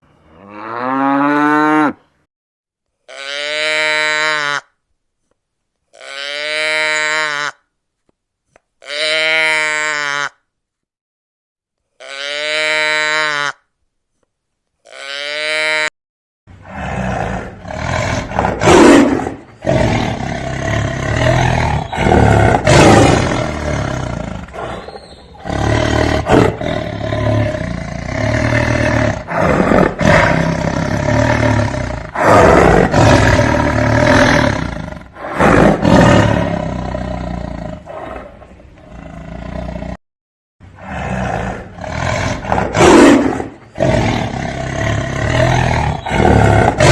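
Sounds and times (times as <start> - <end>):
animal bleats: 3.0 - 4.8, 5.9 - 7.7, 8.8 - 10.5, 12.0 - 13.7, 14.8 - 15.9
loud rough animal calls: 16.6 - 38.4, 40.8 - 46.9.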